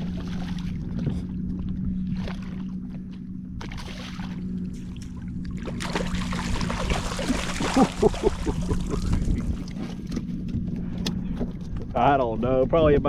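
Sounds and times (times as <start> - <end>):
water splashing and trickling: 0.0 - 2.9, 3.6 - 10.4
steady low hum: 0.0 - 13.0.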